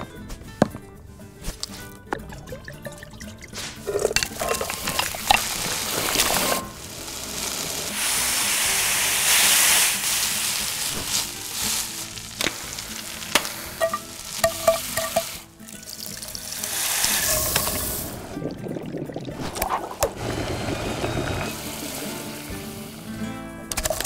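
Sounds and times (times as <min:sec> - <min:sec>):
hot oil sizzling: 0:03.7 - 0:18.4, 0:20.1 - 0:24.0.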